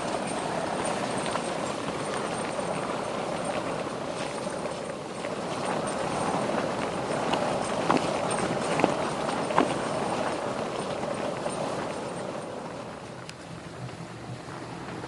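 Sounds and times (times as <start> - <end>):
wind buffeting tent fabric: 0.0 - 15.0
light ticks: 13.2 - 14.4.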